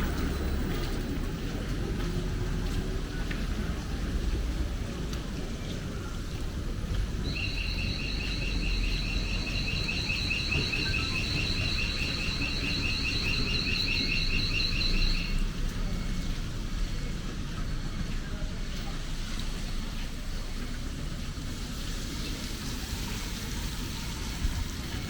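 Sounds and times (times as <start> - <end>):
electronic alarm fluttering tones: 7.2 - 15.3.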